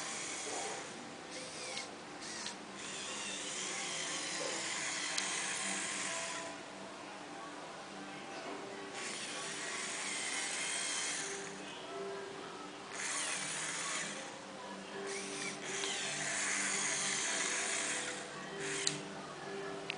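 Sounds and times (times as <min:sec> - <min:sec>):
toy electric motor whirring: 0:00.0 - 0:06.6, 0:09.0 - 0:11.6, 0:12.9 - 0:14.4, 0:15.1 - 0:19.0
background music: 0:00.0 - 0:19.9.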